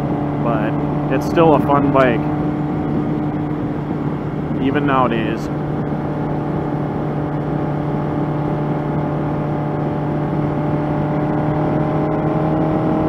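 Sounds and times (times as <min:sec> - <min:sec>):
motorcycle engine cruising: 0:00.0 - 0:13.0
road noise: 0:00.0 - 0:13.0
wind noise: 0:00.0 - 0:13.0.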